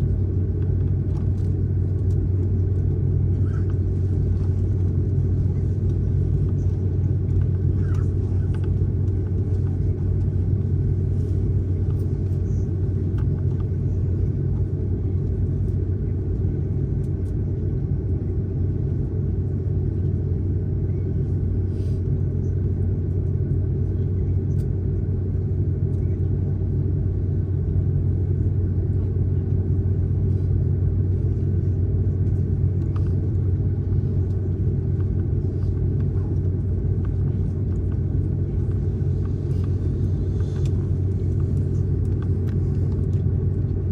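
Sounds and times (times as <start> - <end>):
airliner cabin rumble: 0.0 - 43.9.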